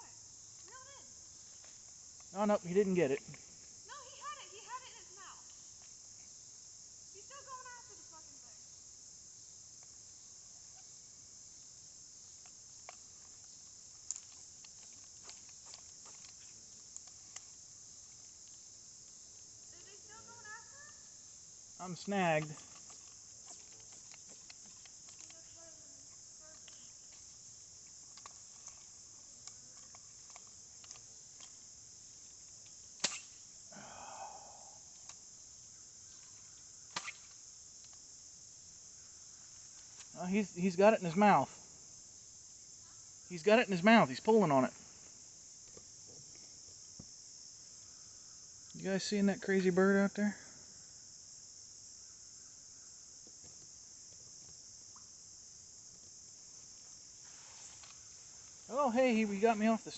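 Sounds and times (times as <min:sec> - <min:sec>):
high-pitched insect chorus: 0:00.0 - 0:59.9
faint ticks: 0:09.7 - 0:10.0, 0:22.0 - 0:35.4
rustling noise: 0:56.6 - 0:58.7.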